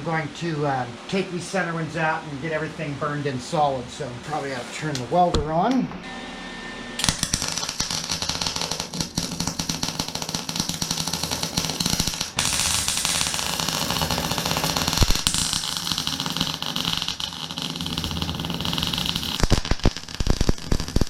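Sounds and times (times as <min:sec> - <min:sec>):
welder crackling: 0:07.0 - 0:21.0.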